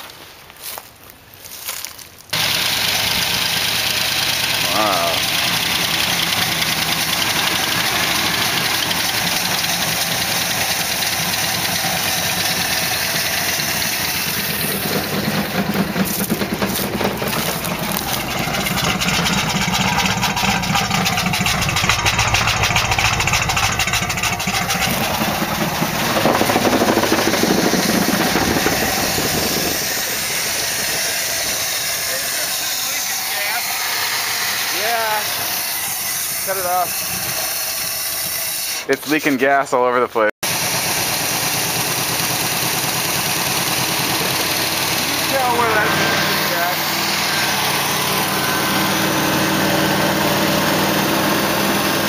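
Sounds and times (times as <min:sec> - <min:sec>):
car engine running: 0:02.4 - 0:36.4, 0:40.4 - 0:52.0.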